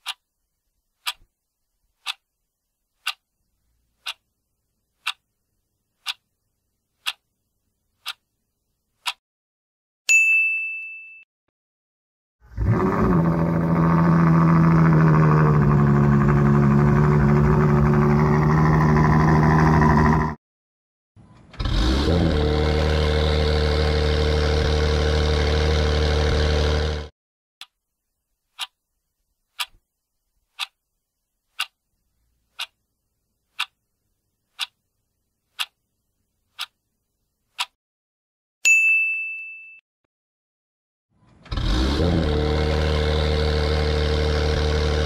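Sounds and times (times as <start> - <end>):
clock ticking: 0.0 - 0.2, 1.0 - 1.3, 2.0 - 2.3, 3.0 - 3.3, 4.0 - 4.3, 5.0 - 5.3, 6.0 - 6.3, 7.0 - 7.3, 8.0 - 8.2, 9.0 - 9.2, 28.6 - 28.8, 29.6 - 29.8, 30.5 - 30.8, 31.5 - 31.8, 32.5 - 32.8, 33.5 - 33.8, 34.5 - 34.8, 35.5 - 35.8, 36.5 - 36.8, 37.5 - 37.8
sports car engine revving: 21.7 - 27.1, 41.6 - 45.0.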